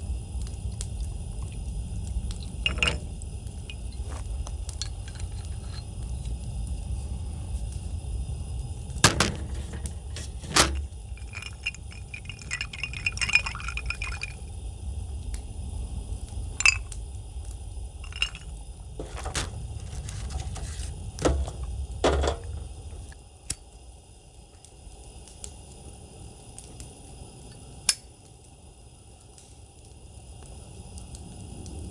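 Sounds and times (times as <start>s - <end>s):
low rumble: 0.0s - 23.4s
tableware knocking and clinking: 2.7s - 3.0s, 9.1s - 14.4s, 21.2s - 22.5s.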